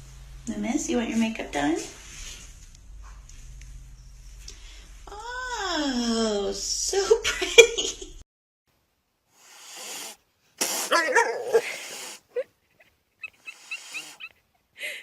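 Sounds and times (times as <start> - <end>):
pet animal crying: 13.2 - 14.4.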